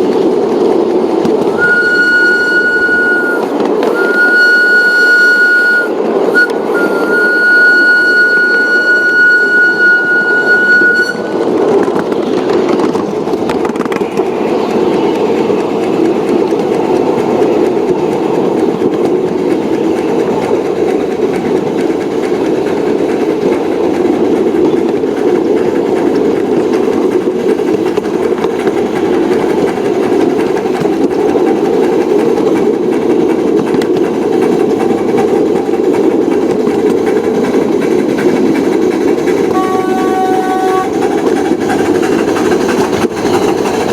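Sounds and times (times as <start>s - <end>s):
train rumbling: 0.0s - 43.9s
train horn tone: 1.5s - 11.5s, 39.5s - 41.1s.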